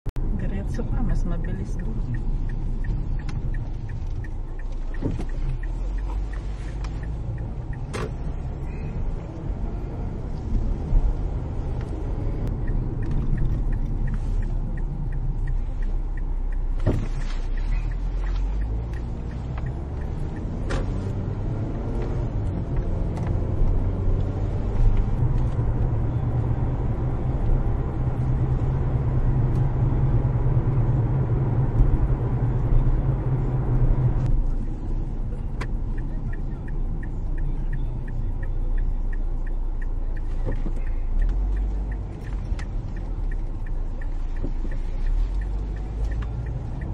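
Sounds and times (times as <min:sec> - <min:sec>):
car engine and road rumble: 0:00.0 - 0:46.9.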